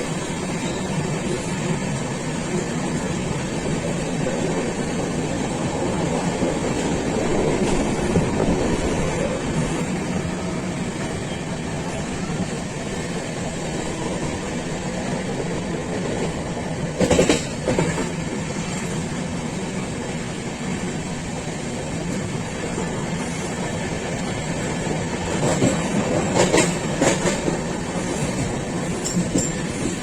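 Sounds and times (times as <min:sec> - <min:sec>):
train rumbling on rails: 0:00.0 - 0:30.0
wheels clacking over rail joints: 0:17.0 - 0:18.3, 0:23.6 - 0:30.0.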